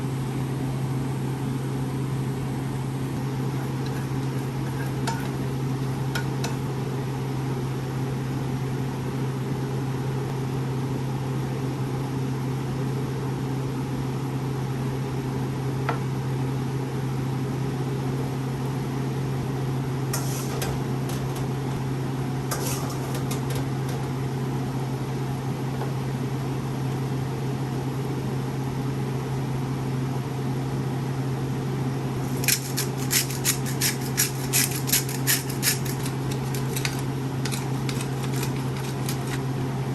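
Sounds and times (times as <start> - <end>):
kitchen appliance humming: 2.2 - 9.4, 19.4 - 27.8, 32.1 - 39.9.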